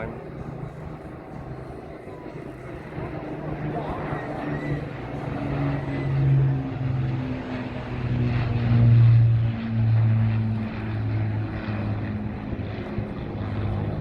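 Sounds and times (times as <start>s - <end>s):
piston engine aircraft droning: 0.0s - 14.0s.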